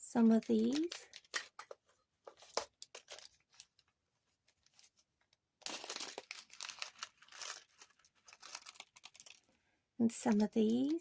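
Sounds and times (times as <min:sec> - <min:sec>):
plastic bags clicking and rustling: 0:00.4 - 0:03.9, 0:05.6 - 0:09.5
plastic bags crinkling: 0:00.4 - 0:03.9, 0:05.6 - 0:09.6.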